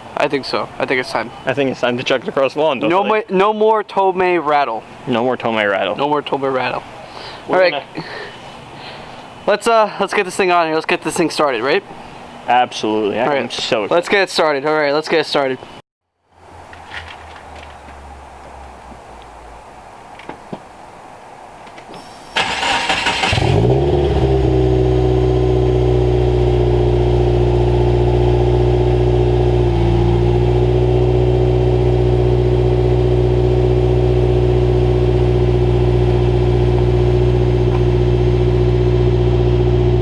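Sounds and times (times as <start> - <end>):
car engine starting and idling: 22.0 - 40.0.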